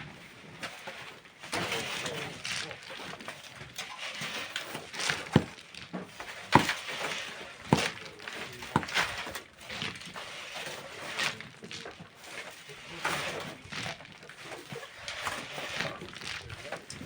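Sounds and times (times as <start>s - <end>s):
scraping and rustling: 0.6s - 17.0s
hand tool strikes: 6.6s - 6.8s, 7.7s - 8.0s, 8.7s - 9.0s.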